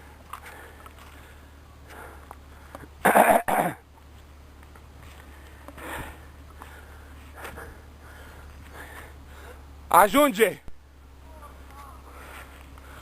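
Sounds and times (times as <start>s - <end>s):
faint low hum: 0.0s - 13.0s
person coughing: 3.0s - 3.8s.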